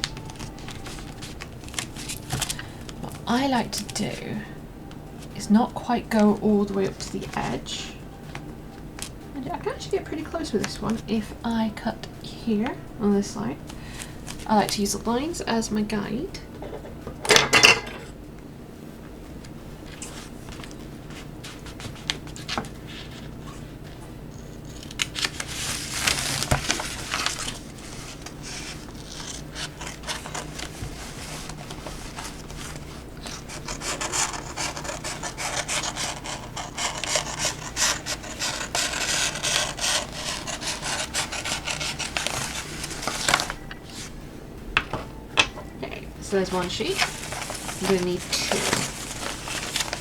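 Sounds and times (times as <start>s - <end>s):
handling of a sheet: 25.0s - 33.8s, 40.3s - 44.2s, 46.5s - 50.0s
scissors snipping plastic sheet: 28.2s - 43.6s.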